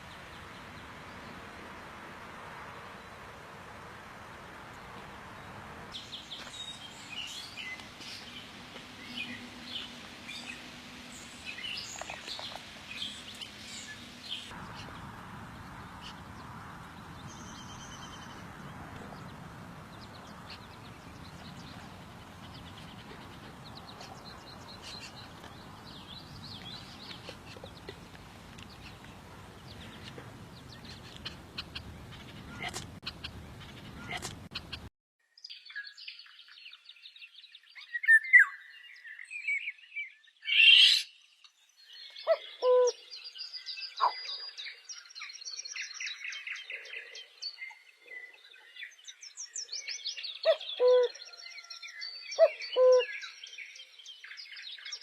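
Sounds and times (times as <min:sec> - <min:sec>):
outdoor background hiss: 0:00.0 - 0:34.9
songbirds chirping: 0:00.0 - 0:55.0.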